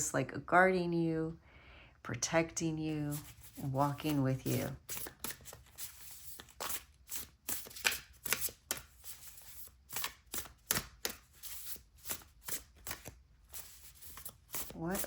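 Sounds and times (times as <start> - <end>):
cards being shuffled: 3.1 - 15.0.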